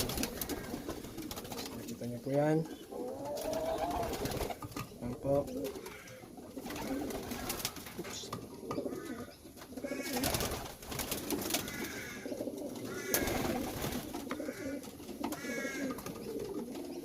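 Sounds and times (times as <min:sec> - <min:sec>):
pigeons cooing: 0:00.0 - 0:17.0
short higher pigeon calls: 0:08.8 - 0:10.5, 0:11.5 - 0:17.0.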